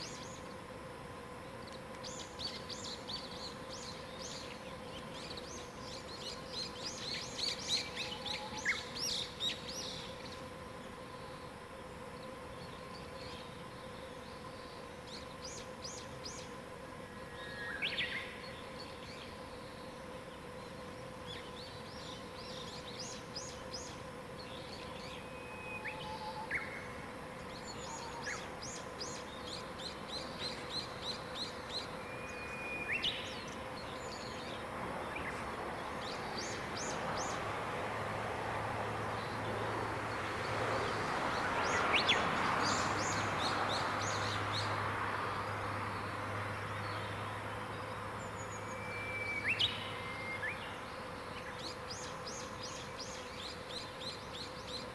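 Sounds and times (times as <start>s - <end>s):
faint steady hum: 0.0s - 54.9s
songbirds singing: 1.3s - 54.9s
rushing noise with low hum: 31.7s - 49.9s.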